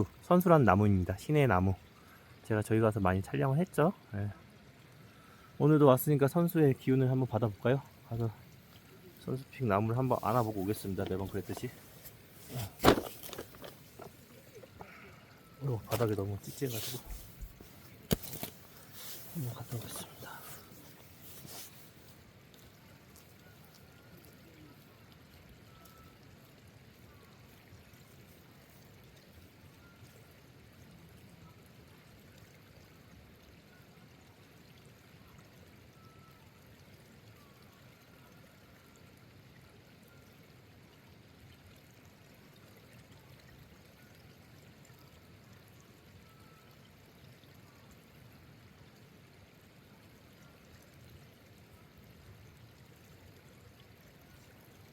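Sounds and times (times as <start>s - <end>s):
light rain hissing: 5.0s - 25.0s.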